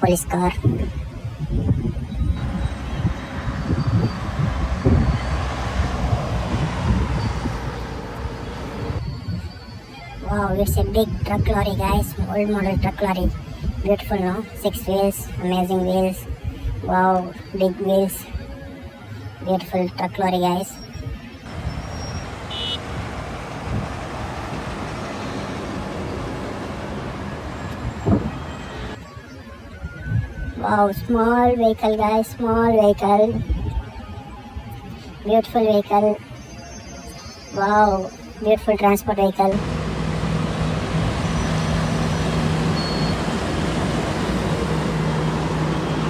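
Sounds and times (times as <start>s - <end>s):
traffic rumble: 0.0s - 14.6s, 21.4s - 29.0s, 37.9s - 46.0s
steady rumbling hissing noise: 21.5s - 29.0s, 39.4s - 46.0s
low thump: 28.0s - 28.4s.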